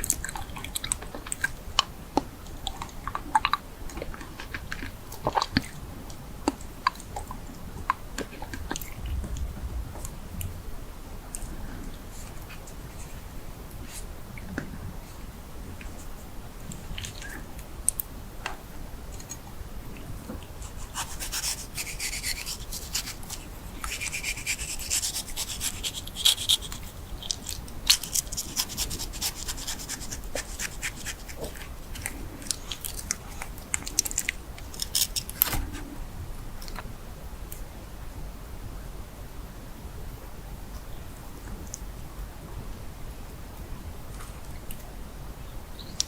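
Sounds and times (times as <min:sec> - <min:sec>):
food crackling and crunching: 0:20.7 - 0:35.7.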